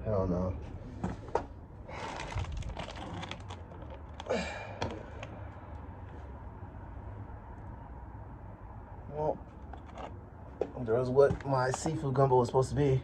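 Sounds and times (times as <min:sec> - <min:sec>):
plastic bag crinkling: 0:02.0 - 0:04.3.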